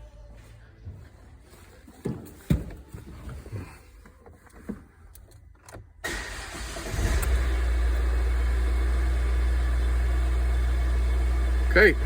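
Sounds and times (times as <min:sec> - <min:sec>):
van engine cranking and idling: 0:05.9 - 0:12.0.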